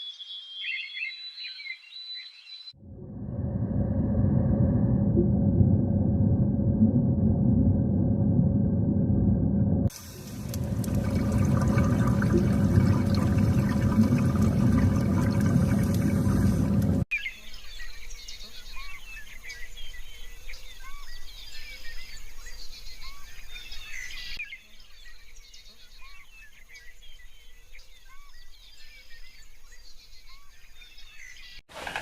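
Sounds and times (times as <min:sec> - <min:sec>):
small birds chirping chorus: 0:00.0 - 0:02.8, 0:17.1 - 0:31.6
rushing noise: 0:02.8 - 0:17.1.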